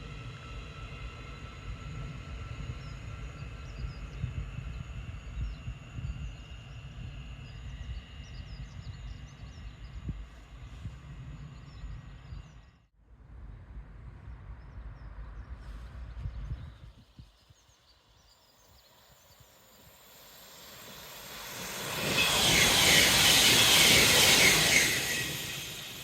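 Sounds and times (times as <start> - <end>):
train rushing past: 19.0 - 26.0.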